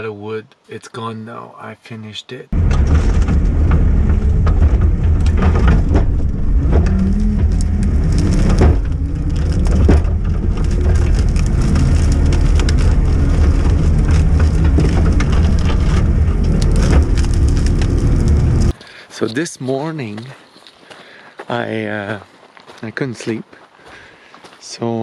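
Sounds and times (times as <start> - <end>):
skid steer engine running: 2.6 - 18.7
clanks and crunches of dirt: 2.6 - 24.7.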